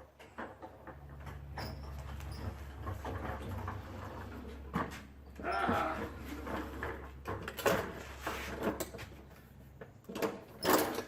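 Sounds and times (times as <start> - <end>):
things being rummaged through: 0.0 - 11.0.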